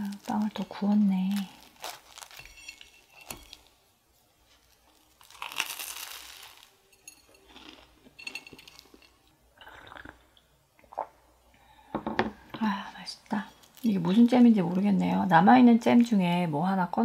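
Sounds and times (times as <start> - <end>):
crunching bites of toast: 5.0 - 6.7.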